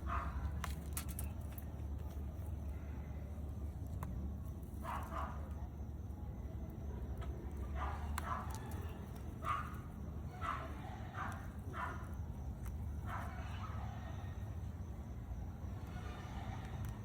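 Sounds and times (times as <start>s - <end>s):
dog barking: 0.0s - 0.6s, 4.8s - 5.5s, 7.7s - 8.8s, 9.4s - 12.1s, 13.0s - 14.1s
low background rumble: 0.0s - 17.0s.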